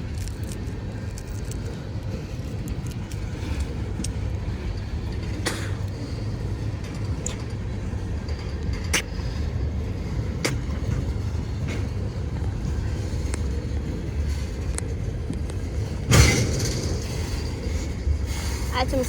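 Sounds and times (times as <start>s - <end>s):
freight cars rolling on rails: 0.0s - 19.0s
loud metal clank: 16.1s - 17.8s.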